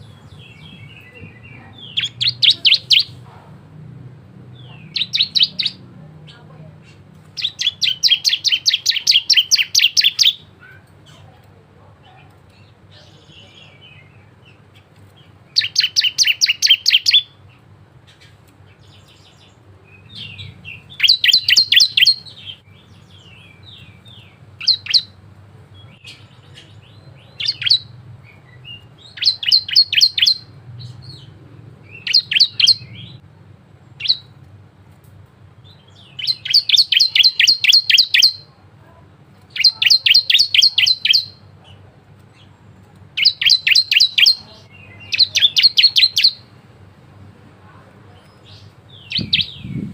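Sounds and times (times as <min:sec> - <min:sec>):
bird singing high chirps: 0:00.0 - 0:03.2, 0:04.6 - 0:06.4, 0:07.3 - 0:10.8, 0:15.2 - 0:25.2, 0:25.8 - 0:33.2, 0:34.0 - 0:34.3, 0:35.6 - 0:38.5, 0:39.5 - 0:41.5, 0:43.2 - 0:46.5, 0:48.2 - 0:49.9.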